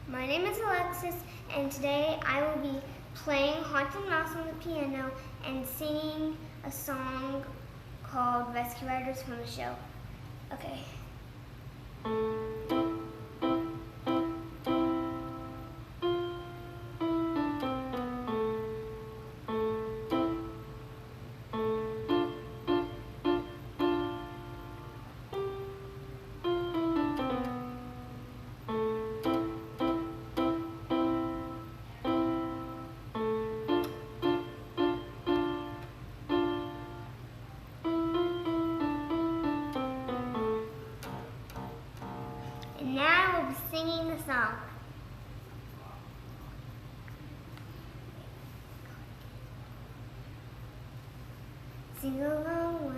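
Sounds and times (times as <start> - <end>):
steady low hum: 0.0 - 52.9
solo piano melody: 12.0 - 42.8.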